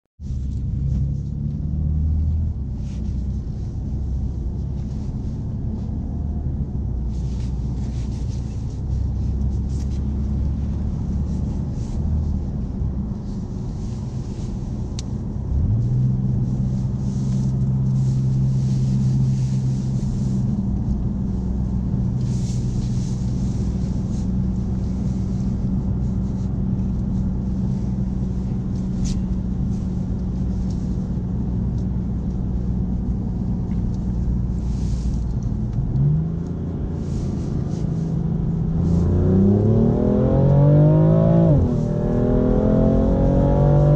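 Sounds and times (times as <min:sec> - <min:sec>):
car engine drone from cabin: 0:00.2 - 0:43.9
tyre and road noise: 0:00.2 - 0:43.9.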